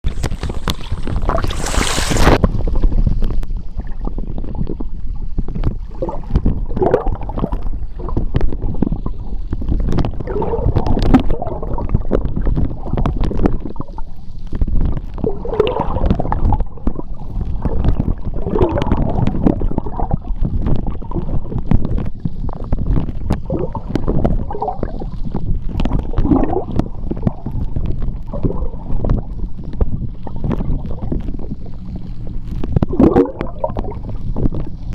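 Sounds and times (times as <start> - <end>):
gurgling bubbles: 0.0 - 34.9
low rumble of moving water: 0.0 - 34.9
brief hiss: 0.1 - 2.4.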